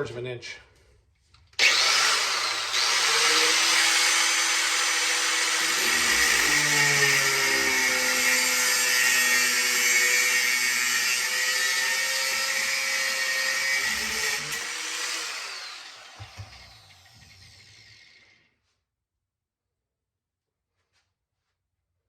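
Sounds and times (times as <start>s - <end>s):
power cutting tool cutting steel: 1.6s - 18.4s.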